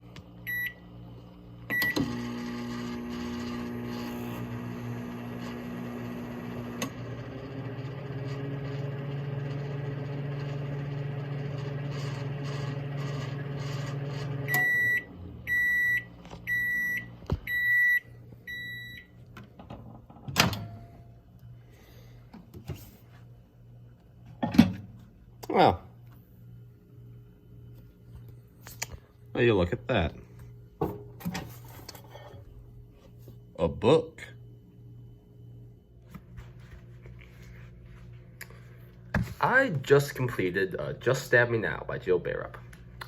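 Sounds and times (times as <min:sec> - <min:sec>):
microwave oven humming: 0:00.0 - 0:43.0
microwave end beeps: 0:00.4 - 0:00.9, 0:01.7 - 0:08.2, 0:11.7 - 0:19.2
microwave keypad beep: 0:00.5 - 0:00.8, 0:01.7 - 0:02.2, 0:14.5 - 0:19.1.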